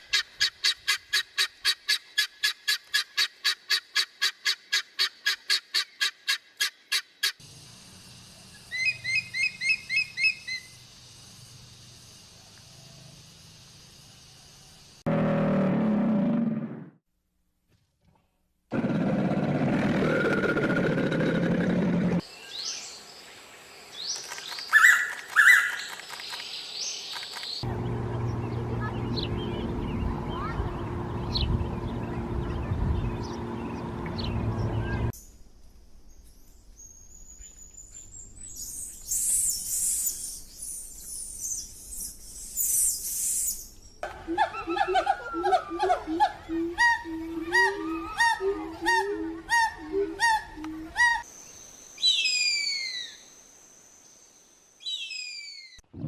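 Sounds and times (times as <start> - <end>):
forest birds calling: 8.3 - 10.8, 22.1 - 55.9
bird's rapid repeated calls: 24.1 - 27.6.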